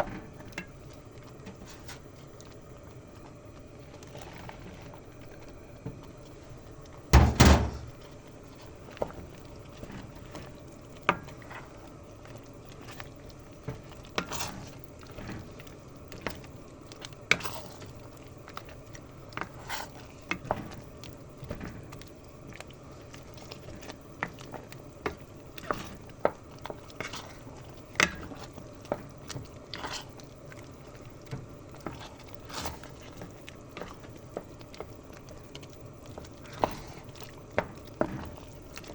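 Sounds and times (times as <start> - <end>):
pot clunk: 7.2 - 8.0
small knocks and plops: 20.3 - 38.9.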